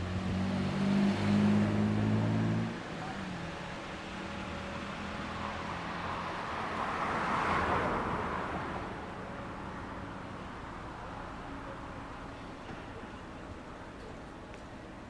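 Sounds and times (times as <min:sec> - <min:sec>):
vehicle passing by: 0:00.0 - 0:03.2.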